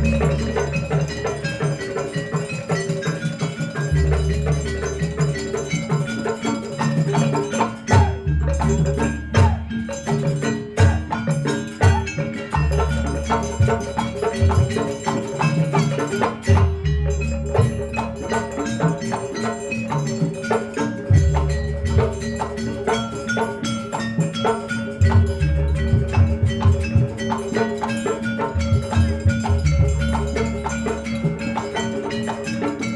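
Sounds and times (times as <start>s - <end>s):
drum strokes: 0.0s - 32.9s.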